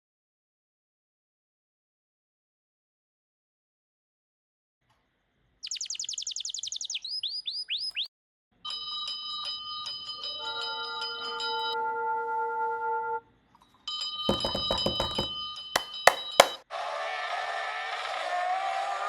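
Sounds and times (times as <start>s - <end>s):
bird singing: 5.6s - 8.1s
bell ringing: 14.0s - 16.6s.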